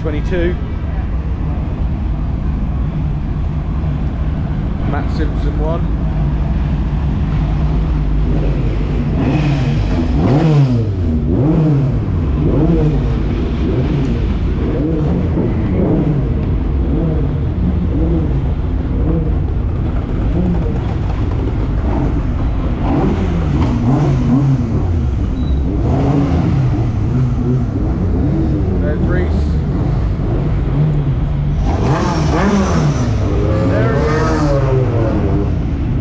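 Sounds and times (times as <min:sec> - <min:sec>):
pickup truck engines revving: 0:00.0 - 0:36.0.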